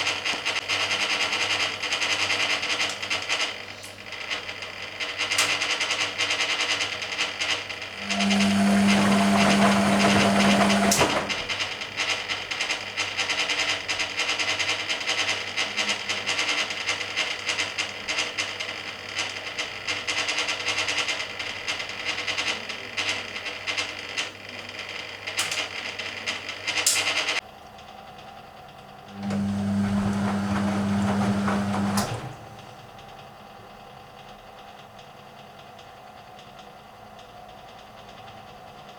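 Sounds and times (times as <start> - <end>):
washing machine motor humming: 7.6 - 12.7, 29.0 - 33.7
washing machine clicks: 8.0 - 12.2, 29.1 - 33.0.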